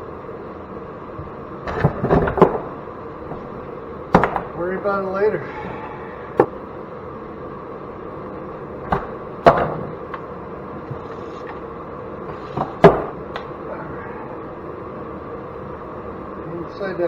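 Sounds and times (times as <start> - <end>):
steady low hum: 0.0 - 17.0
scrap parts knocking together: 12.3 - 13.2.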